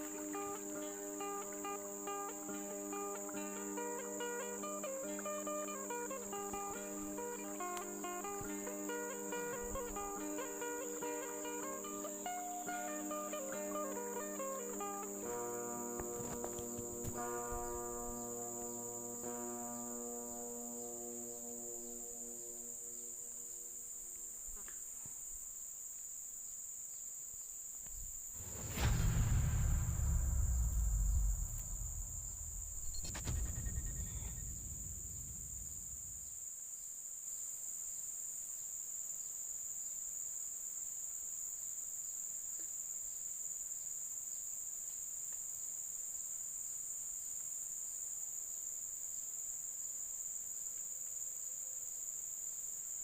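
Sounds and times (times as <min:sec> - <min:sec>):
insects chirring: 0:00.0 - 0:53.0
loud low rumble: 0:28.4 - 0:36.3.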